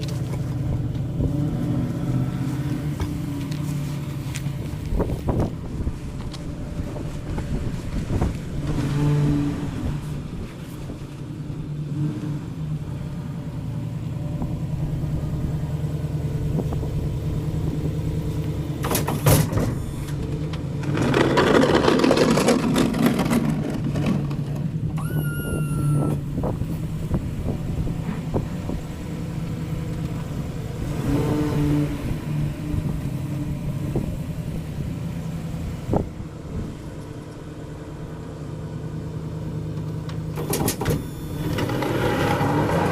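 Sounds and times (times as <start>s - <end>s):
truck engine running: 0.0s - 42.9s
short falling whine: 25.0s - 26.2s.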